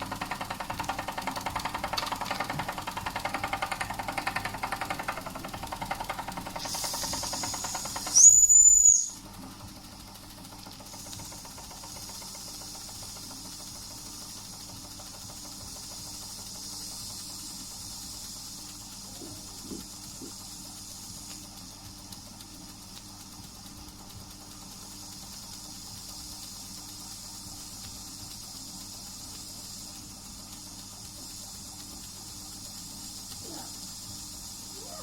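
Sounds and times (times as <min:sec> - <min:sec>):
faint steam hiss: 0:00.0 - 0:35.0
steam whistle: 0:08.1 - 0:09.2.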